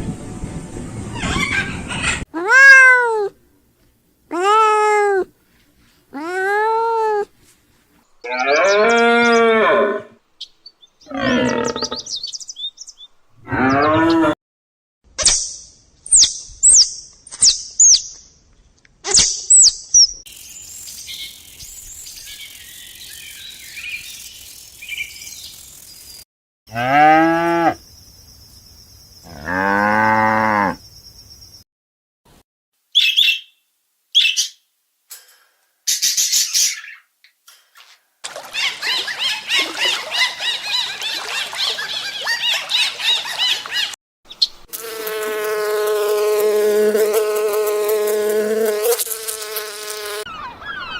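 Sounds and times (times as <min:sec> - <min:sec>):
cow mooing: 0:08.3 - 0:10.2, 0:11.1 - 0:12.0, 0:26.7 - 0:27.8, 0:29.3 - 0:30.8
high chirps: 0:19.2 - 0:26.2.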